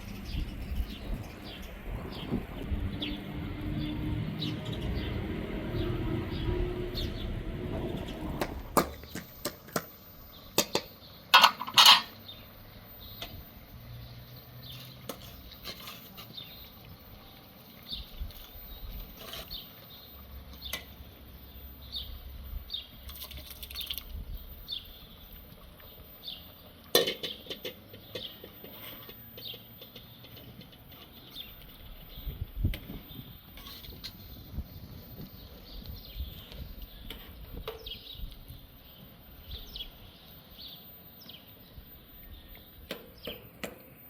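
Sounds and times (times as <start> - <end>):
low rumble: 0.0 - 8.8.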